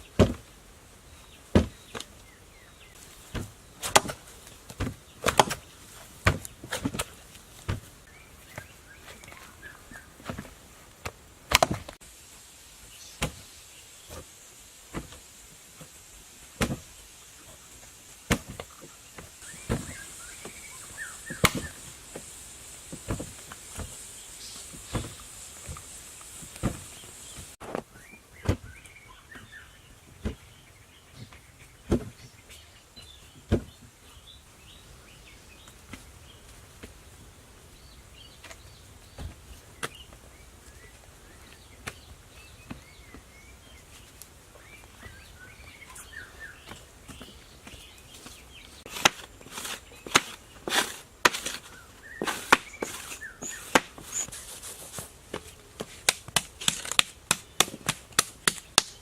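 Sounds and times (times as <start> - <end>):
birds chirping: 0.0 - 10.9, 16.7 - 59.0.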